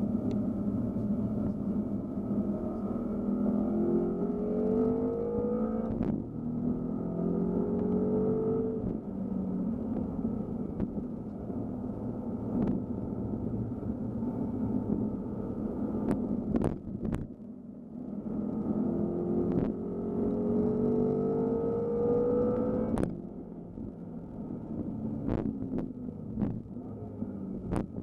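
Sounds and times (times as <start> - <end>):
car engine accelerating: 18.0 - 23.2.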